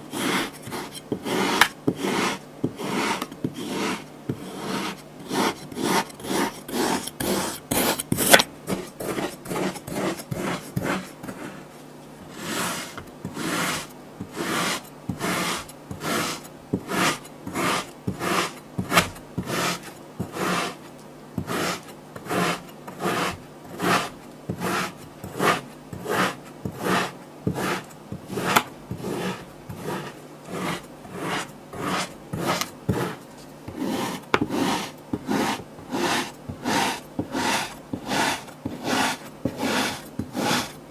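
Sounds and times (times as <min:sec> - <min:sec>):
tool working kinetic sand: 0:00.1 - 0:11.6, 0:12.2 - 0:40.8.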